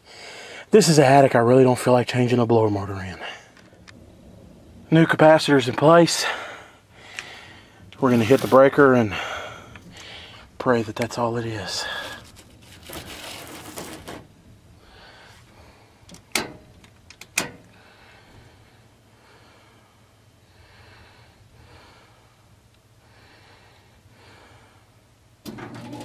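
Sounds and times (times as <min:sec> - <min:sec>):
heavy breathing: 0:00.0 - 0:00.7, 0:06.1 - 0:10.6, 0:11.7 - 0:12.5, 0:14.8 - 0:16.1, 0:17.7 - 0:25.0.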